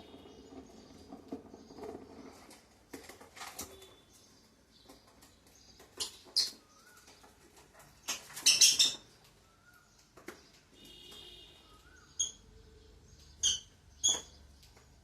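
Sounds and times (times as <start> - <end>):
scratching and rustling: 0.0 - 9.3
lovebirds calling: 0.0 - 15.0.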